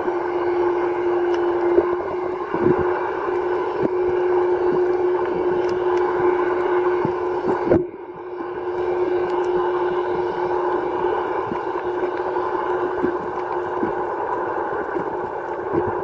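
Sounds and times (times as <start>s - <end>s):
boat engine hum underwater: 0.0s - 16.0s
faint clicks: 8.8s - 16.0s.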